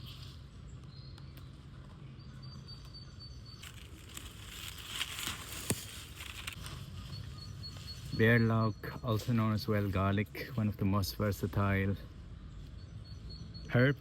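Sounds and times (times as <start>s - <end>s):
rustling crackling noise: 3.6s - 8.2s.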